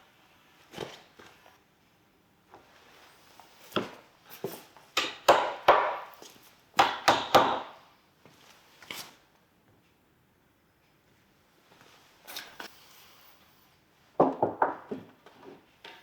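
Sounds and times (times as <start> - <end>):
sharp knocks on wood: 6.8 - 7.7.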